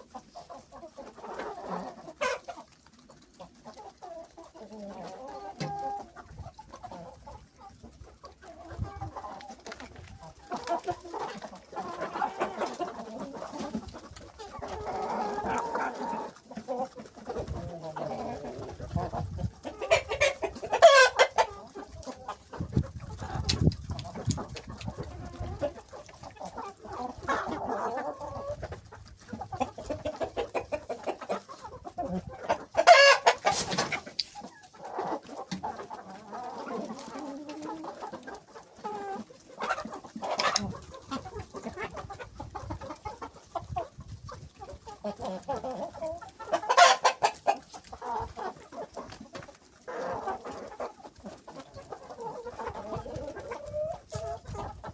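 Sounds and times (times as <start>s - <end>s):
chickens clucking: 0.0s - 54.9s
loud sharp chicken calls: 19.8s - 21.6s, 32.8s - 34.4s.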